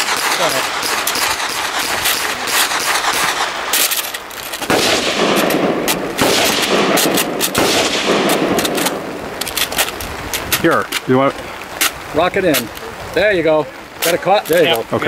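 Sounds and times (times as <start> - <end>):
automatic gunfire: 0.0 - 9.2.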